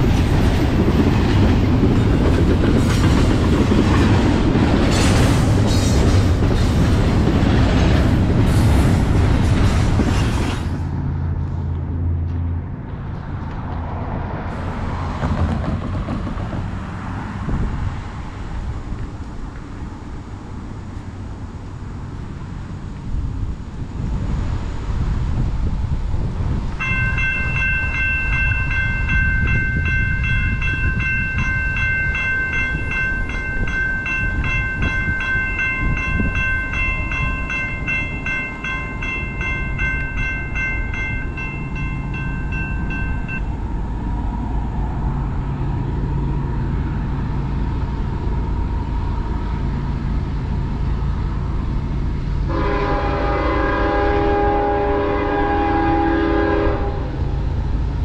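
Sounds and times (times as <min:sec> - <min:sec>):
train rumbling past: 0:00.0 - 0:58.0
bell ringing rapidly: 0:26.8 - 0:43.5
locomotive horn: 0:52.5 - 0:57.3.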